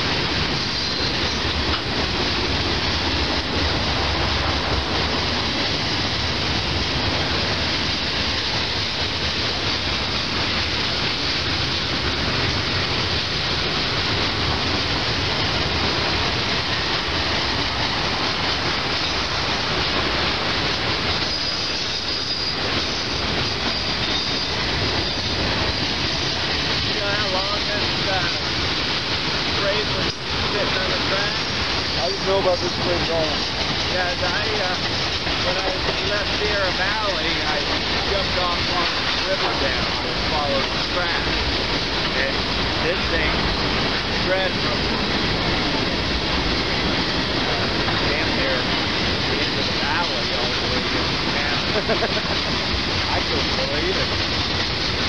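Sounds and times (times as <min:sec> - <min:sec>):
train wheels rumbling on rails: 0:00.0 - 0:55.0
faint wheel squeal: 0:00.7 - 0:01.5, 0:21.2 - 0:25.2.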